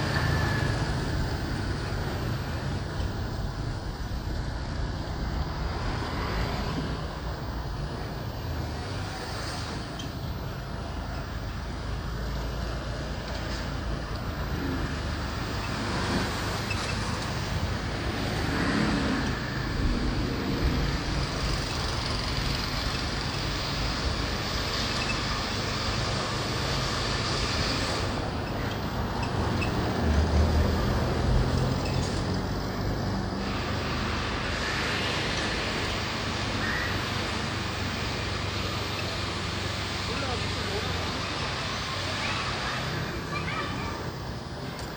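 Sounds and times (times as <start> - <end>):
motorbike engine hum: 0.0 - 44.9
road noise: 0.0 - 44.9
street traffic: 0.0 - 44.9.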